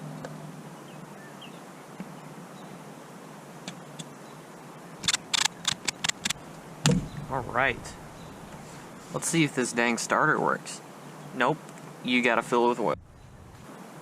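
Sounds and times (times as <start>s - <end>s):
sharp clicks or knocks: 5.0s - 8.6s.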